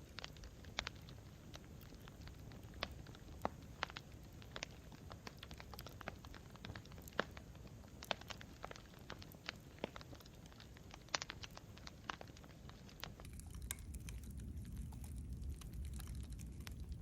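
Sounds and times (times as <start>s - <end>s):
campfire crackling and popping: 0.0s - 17.0s
low rumble: 13.2s - 17.0s.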